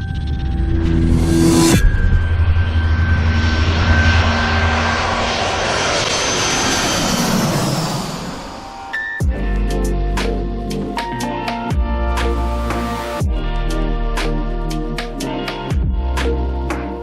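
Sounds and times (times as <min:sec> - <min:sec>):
jet airliner passing: 0:00.0 - 0:09.2.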